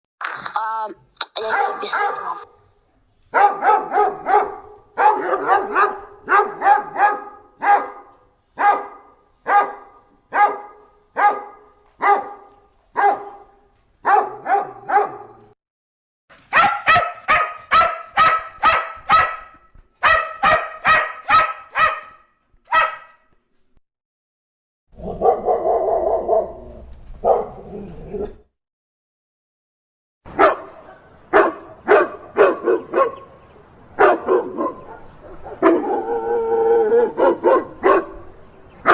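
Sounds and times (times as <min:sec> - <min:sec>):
dog barking: 0:01.4 - 0:02.6, 0:03.3 - 0:15.5, 0:16.5 - 0:23.2, 0:25.0 - 0:26.6, 0:27.2 - 0:27.7, 0:30.3 - 0:33.3, 0:34.0 - 0:36.2, 0:36.9 - 0:38.9.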